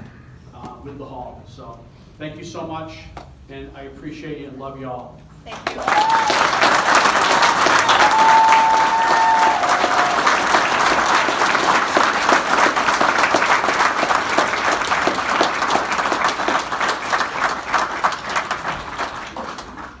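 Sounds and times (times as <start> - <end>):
crowd applauding: 5.5 - 20.0.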